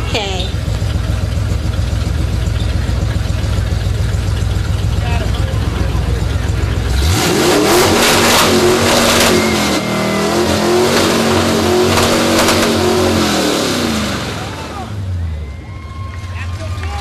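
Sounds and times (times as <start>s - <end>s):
truck engine revving loudly: 0.0s - 15.4s.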